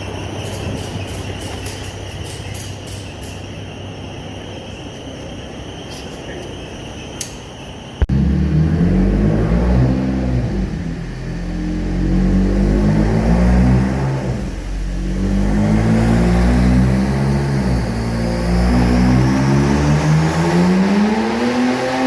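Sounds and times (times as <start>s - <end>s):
car engine revving: 8.1s - 22.0s.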